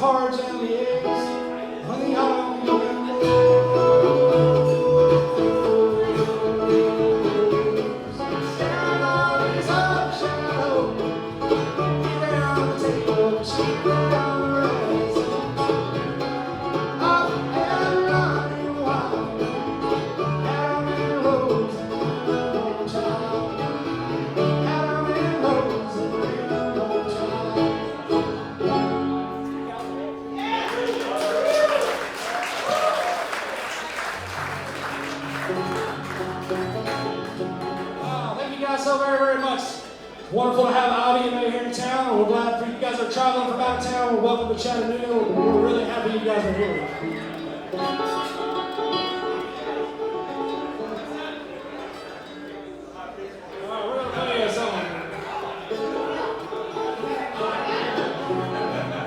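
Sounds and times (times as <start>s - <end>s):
guitar picking: 0.0s - 30.5s, 34.2s - 59.0s
banjo picking: 0.0s - 30.6s, 34.2s - 59.0s
alternating bass line: 3.2s - 29.0s.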